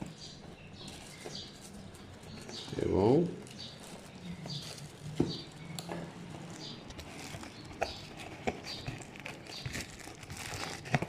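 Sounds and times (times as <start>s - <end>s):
cardboard packaging: 0.0s - 11.0s.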